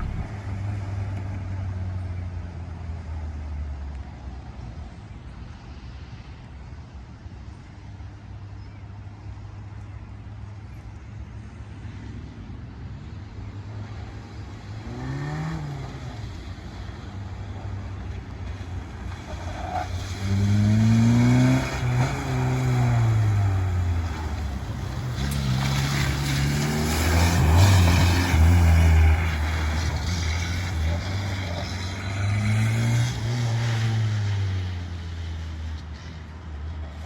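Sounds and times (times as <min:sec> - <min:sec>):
car engine revving past: 0:00.0 - 0:00.9, 0:14.8 - 0:16.7, 0:19.8 - 0:35.8.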